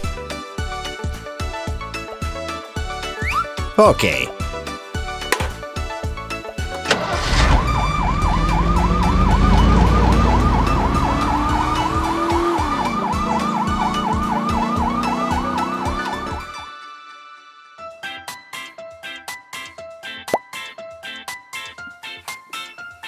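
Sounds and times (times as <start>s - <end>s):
electronic toy siren wailing: 7.7s - 16.6s.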